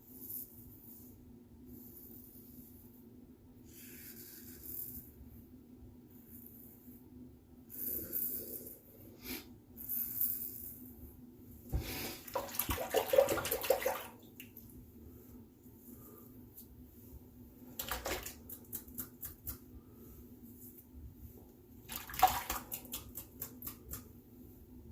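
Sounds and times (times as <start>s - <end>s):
splashing water: 12.2s - 14.5s, 17.8s - 18.5s, 21.9s - 23.7s.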